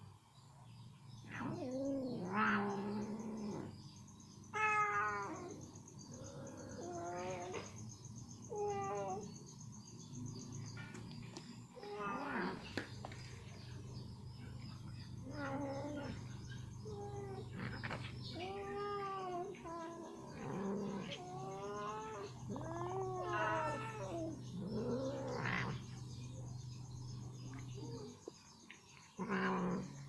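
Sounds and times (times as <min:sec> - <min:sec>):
cat meowing and yowling: 0:04.5 - 0:05.6, 0:08.5 - 0:09.3, 0:15.2 - 0:25.7.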